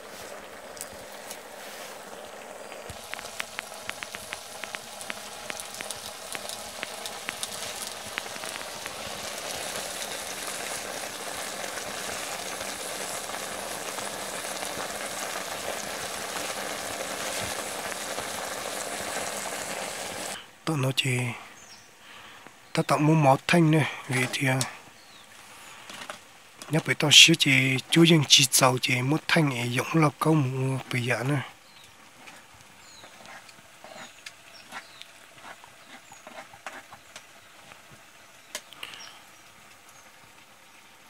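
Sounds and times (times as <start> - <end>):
food frying in hot oil: 0.0 - 20.4, 24.0 - 41.0
sharp crackling pops: 2.7 - 20.4, 38.5 - 39.8.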